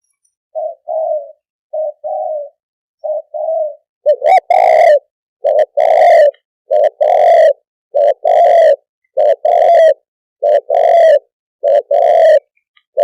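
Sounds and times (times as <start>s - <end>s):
dove cooing: 0.6s - 13.0s.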